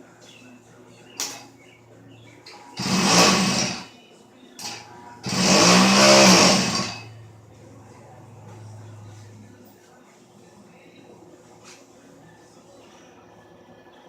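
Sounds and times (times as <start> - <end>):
small two-stroke engine revving: 2.8 - 3.9, 4.6 - 7.1.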